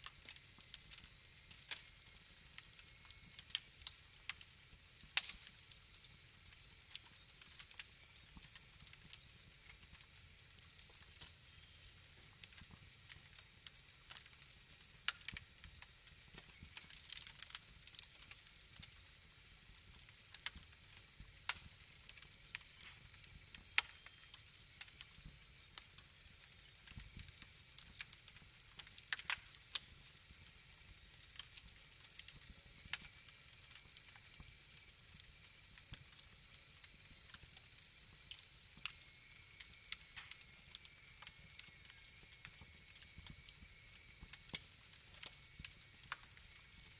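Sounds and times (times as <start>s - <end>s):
sharp pops and snaps: 0.0s - 46.9s
wood fire crackling: 0.0s - 46.9s.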